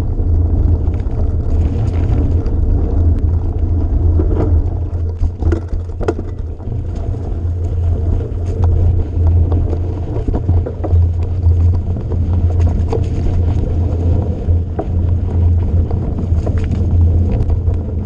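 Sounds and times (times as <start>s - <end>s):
vehicle rumbling over rough ground: 0.0s - 18.0s
knocks and rattles: 4.1s - 7.1s.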